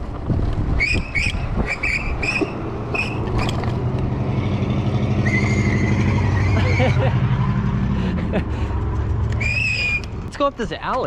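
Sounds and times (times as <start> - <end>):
low motor hum: 0.0 - 10.4
short high-pitched squeaks: 0.8 - 3.7, 5.2 - 6.9, 9.4 - 10.2.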